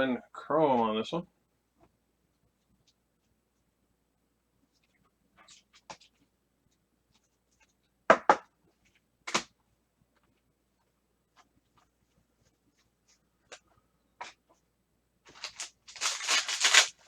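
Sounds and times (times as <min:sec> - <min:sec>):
trading cards slapping: 0:15.3 - 0:17.0.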